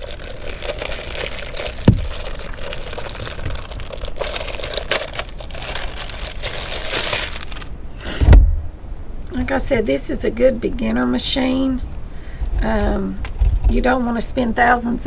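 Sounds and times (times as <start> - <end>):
packaging crinkling: 0.0 - 8.0
sharp knock: 8.1 - 8.8.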